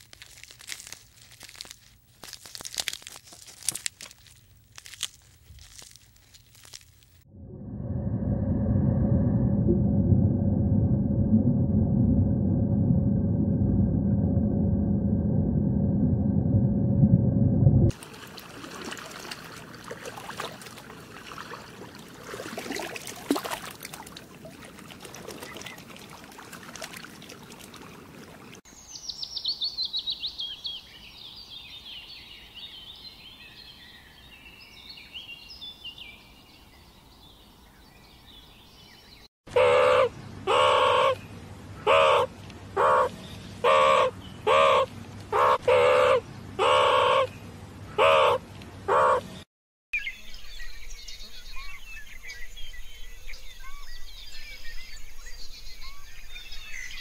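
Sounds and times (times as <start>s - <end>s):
rustling with clicks: 0.0s - 7.2s.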